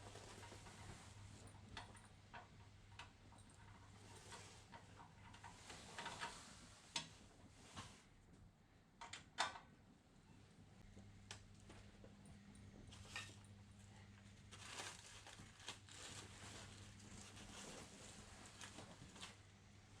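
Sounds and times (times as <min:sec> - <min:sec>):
steady low hum: 0:10.0 - 0:20.0.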